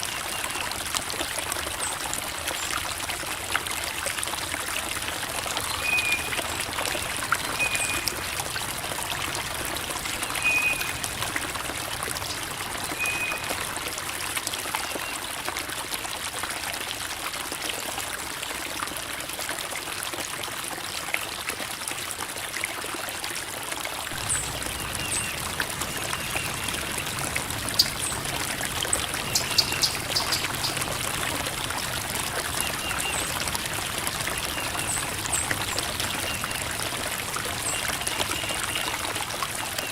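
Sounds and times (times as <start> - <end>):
creek water babbling over rocks: 0.0 - 39.9.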